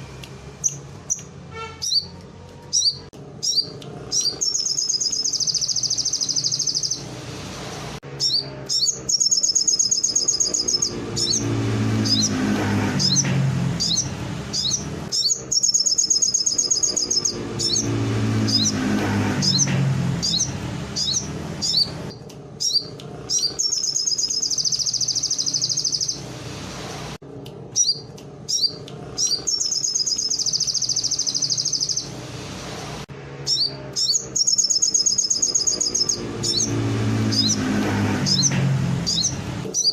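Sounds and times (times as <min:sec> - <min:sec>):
songbird trills and chirps: 0:00.6 - 0:07.0, 0:08.2 - 0:12.4, 0:13.8 - 0:18.8, 0:19.5 - 0:26.2, 0:27.8 - 0:32.1, 0:33.5 - 0:37.6.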